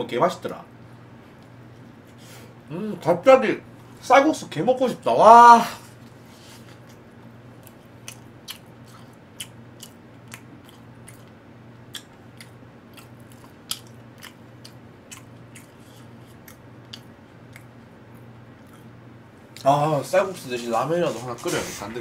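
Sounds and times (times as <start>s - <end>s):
low electrical hum: 0.0s - 22.0s
person chewing food: 6.6s - 19.6s.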